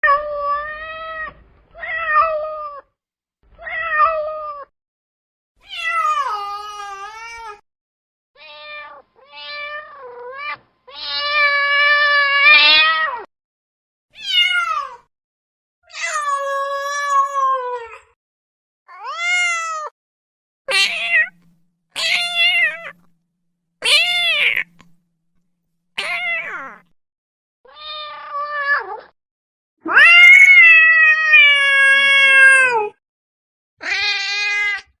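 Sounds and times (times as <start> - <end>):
cat meowing: 8.4 - 13.3, 14.2 - 15.1, 18.9 - 19.9, 20.7 - 23.1, 23.8 - 25.0, 26.0 - 26.9, 27.7 - 29.1, 29.8 - 33.0, 33.8 - 35.0.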